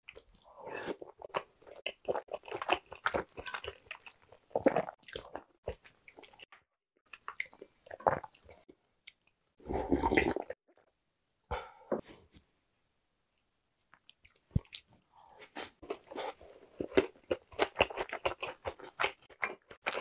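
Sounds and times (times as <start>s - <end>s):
person chewing with wet sounds: 0.1s - 6.5s, 15.8s - 20.0s.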